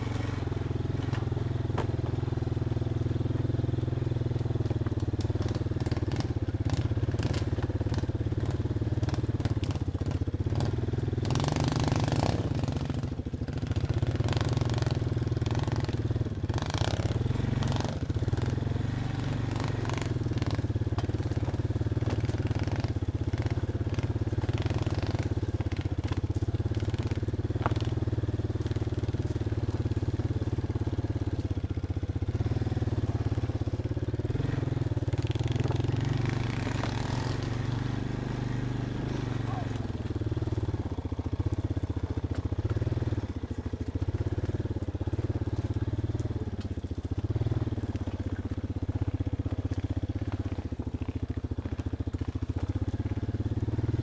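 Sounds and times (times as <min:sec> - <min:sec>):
clatter and rustling over rough ground: 0:00.0 - 0:54.0
off-road vehicle engine running: 0:00.0 - 0:54.0.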